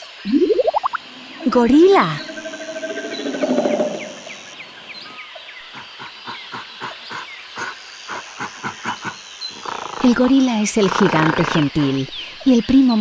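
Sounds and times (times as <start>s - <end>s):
birds chirping: 0.0s - 13.0s
gorilla grunt: 5.6s - 10.2s.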